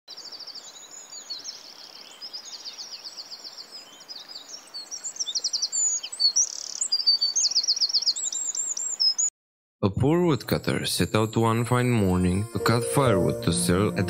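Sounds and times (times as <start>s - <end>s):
small birds chirping and trilling: 0.1s - 9.3s.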